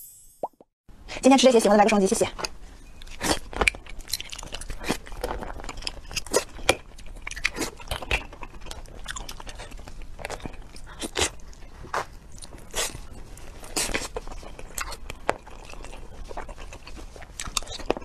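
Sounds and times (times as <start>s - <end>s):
close chewing with sharp crunches: 3.0s - 18.0s.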